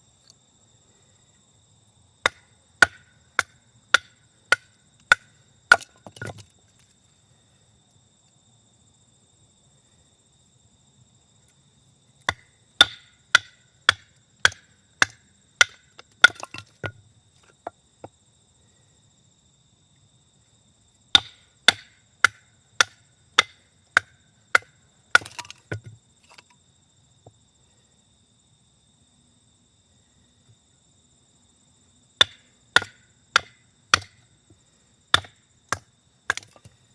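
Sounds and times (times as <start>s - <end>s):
insects trilling: 0.0s - 36.9s
axe chopping wood: 2.2s - 6.4s, 12.3s - 17.0s, 21.1s - 26.4s, 32.2s - 34.3s, 35.1s - 36.8s.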